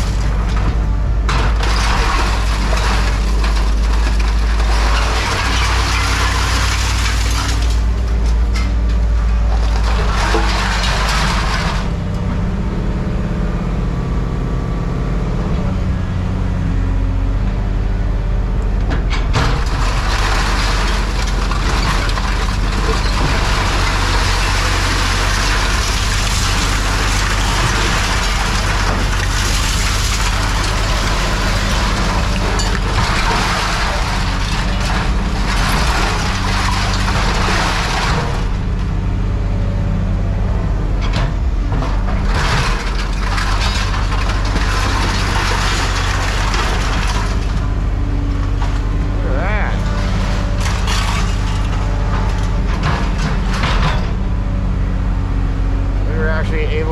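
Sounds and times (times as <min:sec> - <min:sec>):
heavy engine running: 0:00.0 - 0:56.9
rough hissing and scraping: 0:25.7 - 0:34.2.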